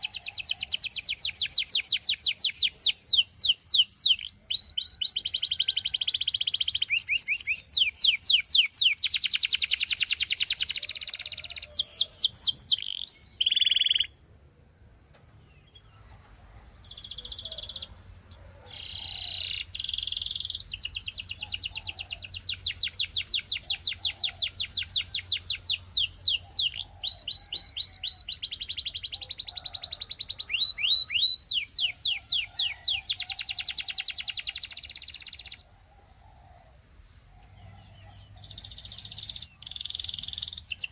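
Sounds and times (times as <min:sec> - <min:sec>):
canary singing trills: 0:00.0 - 0:14.2, 0:15.3 - 0:35.8, 0:37.3 - 0:40.9.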